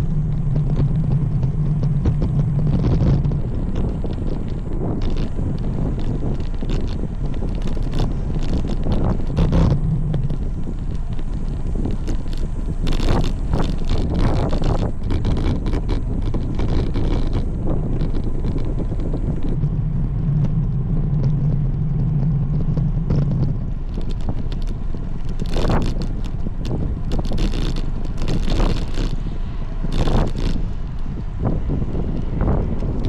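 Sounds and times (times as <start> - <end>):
road rumble: 0.0 - 33.0
steady low hum: 0.0 - 33.0
wind buffeting microphone: 0.0 - 33.0.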